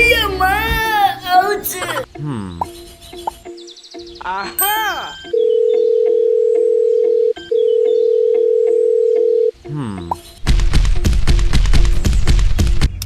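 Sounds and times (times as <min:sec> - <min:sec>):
background music: 0:00.0 - 0:13.0
electronic beep tone: 0:04.6 - 0:09.5.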